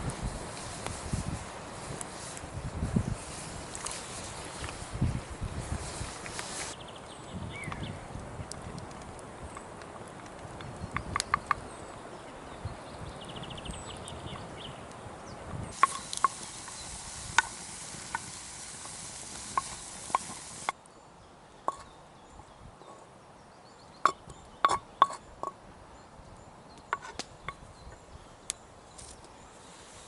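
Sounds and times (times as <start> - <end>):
steady hiss: 0.0 - 7.6, 15.7 - 20.8, 28.9 - 30.0.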